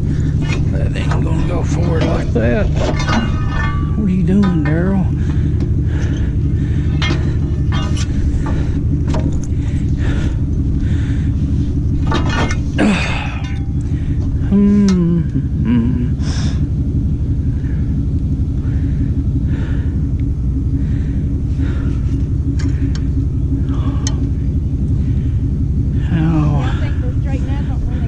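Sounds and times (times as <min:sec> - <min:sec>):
metallic clanks and rattles: 0:00.0 - 0:15.1, 0:21.2 - 0:25.8
truck engine idling: 0:00.0 - 0:28.0.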